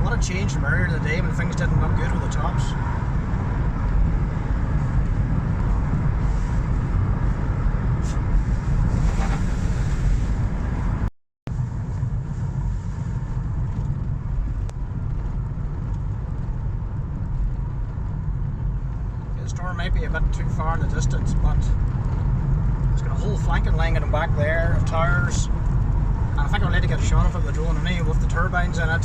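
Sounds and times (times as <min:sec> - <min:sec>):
wind buffeting microphone: 0:00.0 - 0:19.4.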